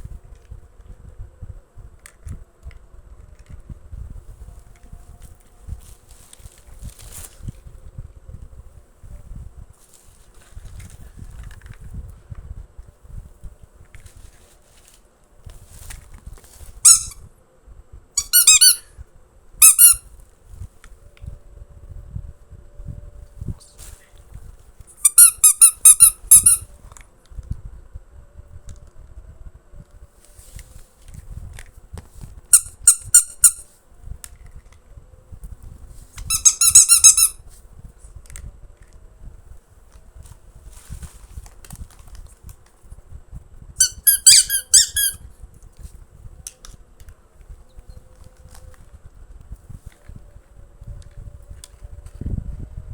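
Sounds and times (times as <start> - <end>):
high-pitched squeaks: 16.8 - 17.3, 18.2 - 18.9, 19.6 - 20.0, 25.0 - 26.7, 32.5 - 33.6, 36.2 - 37.4, 43.8 - 45.2.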